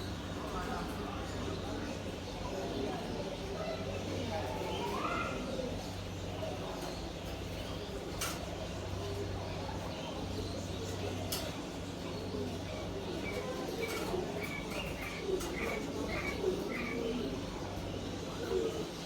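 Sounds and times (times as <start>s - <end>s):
pigeons cooing: 4.2s - 19.0s
small birds chirping: 4.2s - 19.0s.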